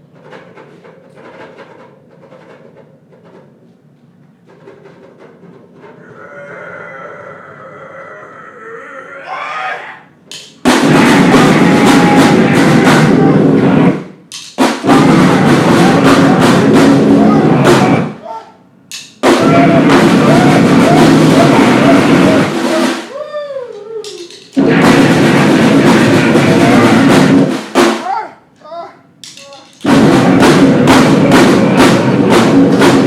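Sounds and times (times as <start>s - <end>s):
wavering voice-like wail: 6.0s - 10.1s, 11.0s - 13.4s, 15.0s - 18.6s, 19.3s - 24.8s, 25.8s - 27.3s
pounding drums and harsh noise: 9.1s - 33.0s.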